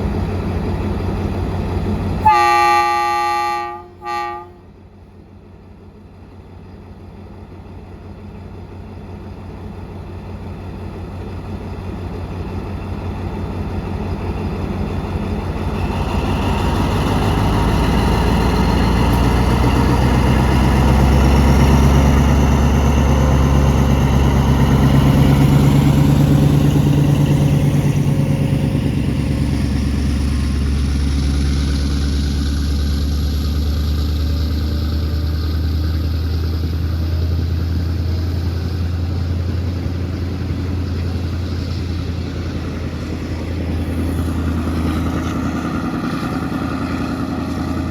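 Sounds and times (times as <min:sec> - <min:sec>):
diesel train passing: 0:00.0 - 0:47.9
train horn: 0:02.2 - 0:04.8.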